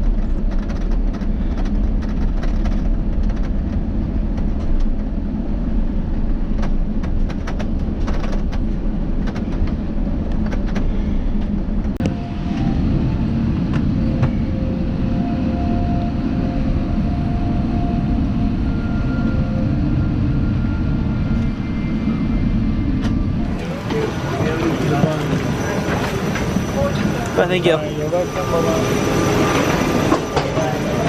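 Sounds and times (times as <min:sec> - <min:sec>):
airliner cabin rumble: 0:00.0 - 0:31.0
faint steady tones: 0:12.0 - 0:31.0.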